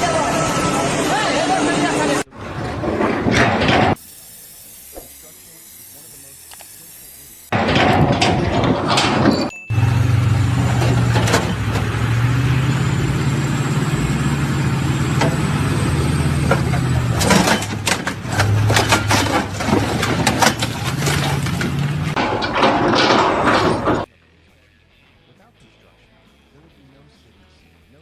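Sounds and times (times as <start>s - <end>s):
heavy engine running: 0.0s - 4.0s, 7.5s - 24.1s
sharp knocks and clatter: 2.3s - 4.0s, 7.5s - 12.9s, 15.0s - 24.1s.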